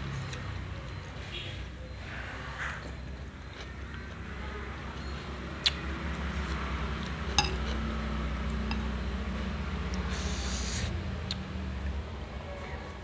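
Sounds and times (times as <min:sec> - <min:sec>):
utensil clinking against glass dish: 0:07.4 - 0:07.8, 0:08.7 - 0:09.0.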